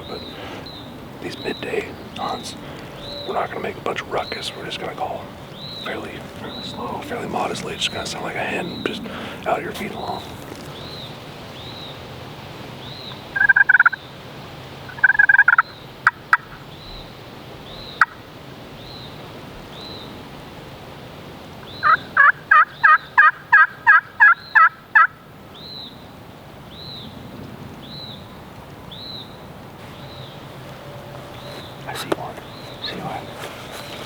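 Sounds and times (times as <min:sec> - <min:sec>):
turkey call yelps: 0:13.4 - 0:14.0, 0:21.8 - 0:25.2.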